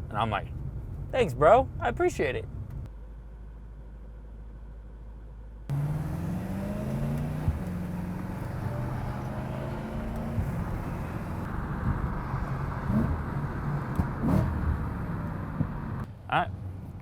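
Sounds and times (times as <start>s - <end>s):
car engine accelerating: 5.7s - 16.1s.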